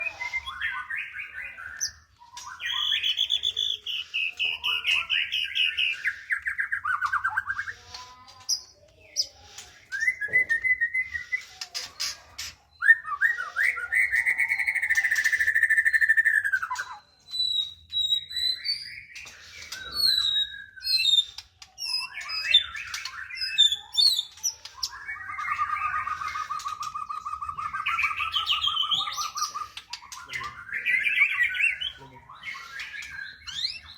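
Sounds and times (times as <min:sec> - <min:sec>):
bird singing whistled phrases: 0:09.9 - 0:11.6, 0:12.8 - 0:33.9.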